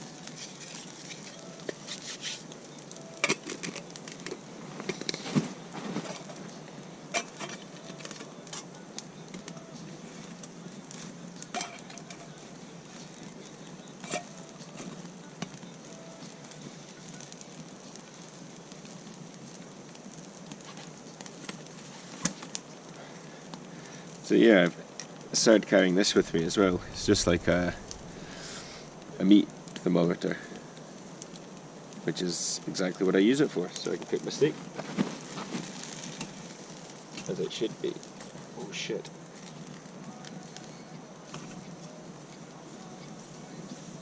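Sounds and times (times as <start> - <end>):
steak sizzling in a pan: 0.0 - 44.0
cookware and utensils clinking: 7.1 - 8.7, 11.5 - 12.4, 14.0 - 14.4.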